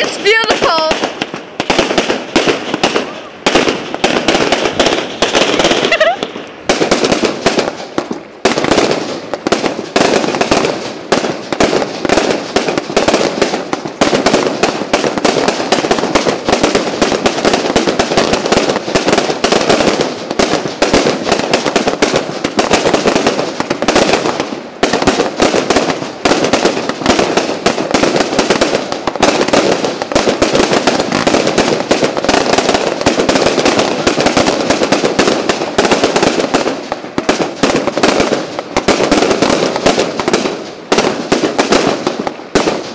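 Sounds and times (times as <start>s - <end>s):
fireworks banging and crackling: 0.0s - 42.9s.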